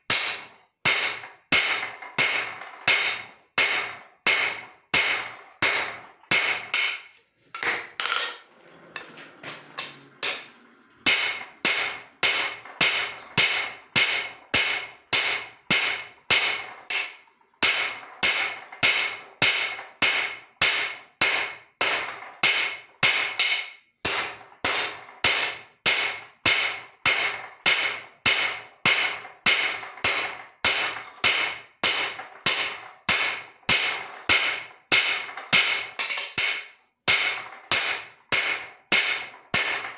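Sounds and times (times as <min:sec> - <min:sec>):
hammer ringing on anvil: 0:00.1 - 0:08.4.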